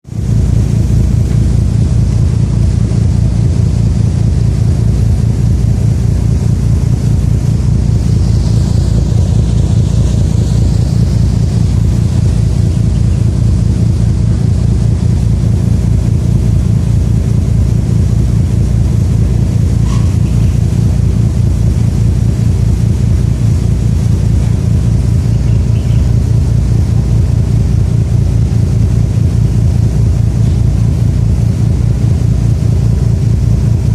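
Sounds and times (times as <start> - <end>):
engine running steadily: 0.0 - 33.9.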